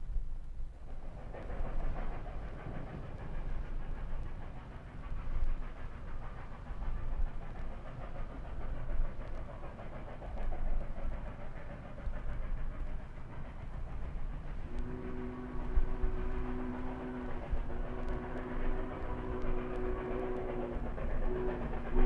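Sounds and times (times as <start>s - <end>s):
steam locomotive exhaust puffing: 0.0s - 22.0s.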